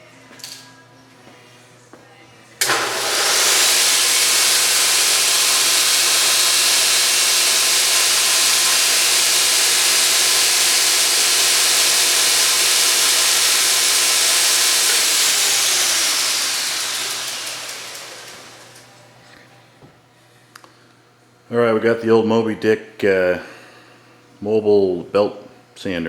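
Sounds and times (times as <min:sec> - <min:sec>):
belt grinder whirring: 0:02.6 - 0:19.0.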